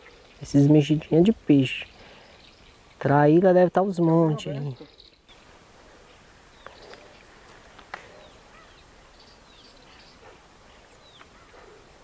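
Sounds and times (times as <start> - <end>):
outdoor hiss: 0.0 - 12.0.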